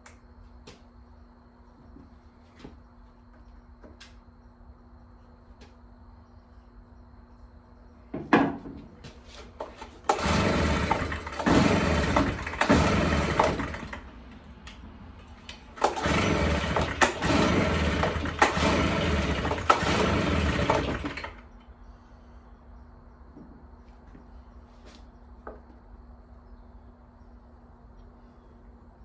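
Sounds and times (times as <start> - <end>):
pull-starter pulls: 9.4 - 14.1, 14.7 - 21.4
leaf blower engine sputtering: 9.6 - 14.2, 15.6 - 21.6.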